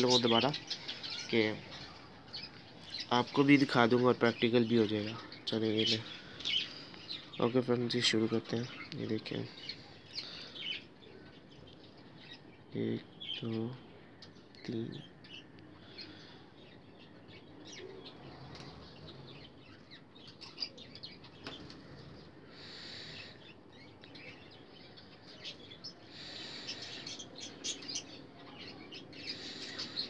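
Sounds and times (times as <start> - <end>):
cage birds chirping: 0.0 - 30.0.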